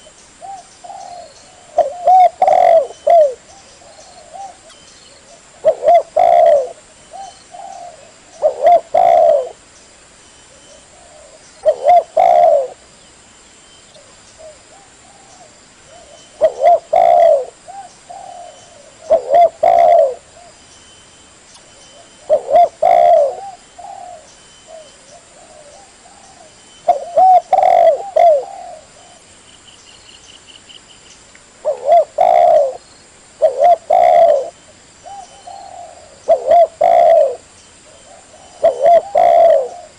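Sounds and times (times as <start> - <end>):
dove cooing: 0.0 - 9.6, 10.6 - 12.8, 14.0 - 20.6, 21.9 - 29.3, 31.6 - 32.8, 33.4 - 39.9.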